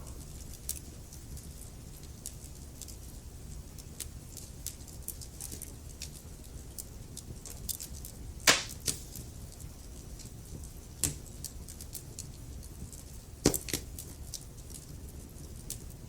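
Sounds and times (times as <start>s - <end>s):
wood fire crackling: 0.0s - 16.0s
loud fire pop: 8.5s - 9.0s.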